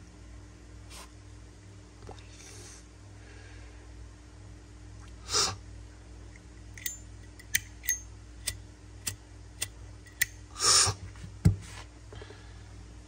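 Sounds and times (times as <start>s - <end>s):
metal lighter clicks: 6.8s - 10.4s.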